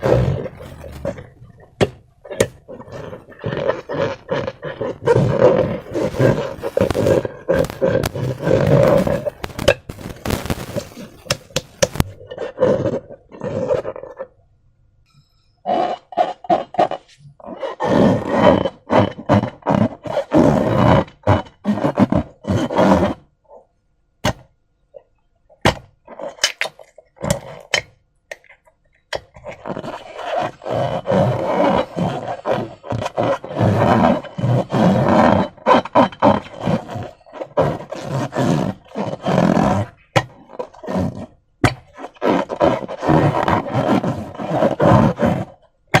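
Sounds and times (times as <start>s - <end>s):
slime squelching by hand: 0.0s - 14.3s
sharp clicks: 5.8s - 12.2s.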